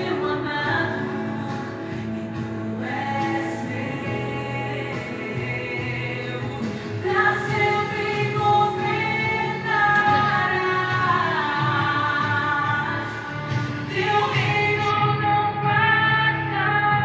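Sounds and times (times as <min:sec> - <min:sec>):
band playing: 0:00.0 - 0:15.2
backing voices: 0:00.0 - 0:16.9
gospel song with woman singing: 0:00.0 - 0:17.0.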